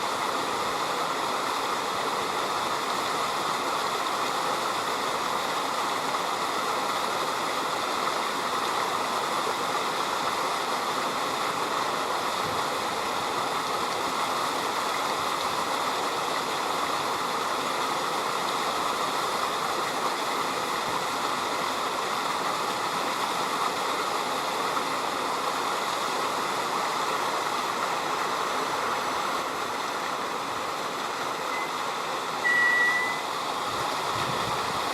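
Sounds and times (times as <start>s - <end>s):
river water rushing: 0.0s - 34.9s
short high rising note: 32.4s - 33.3s.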